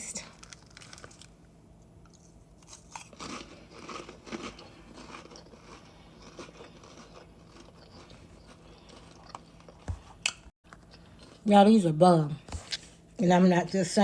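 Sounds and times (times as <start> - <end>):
person crunching crackers: 0.3 - 1.5, 2.1 - 11.3.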